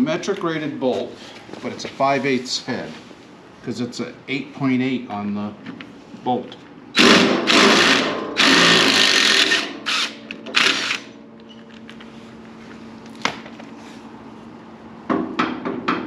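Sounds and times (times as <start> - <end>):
power tool running: 7.0 - 11.2.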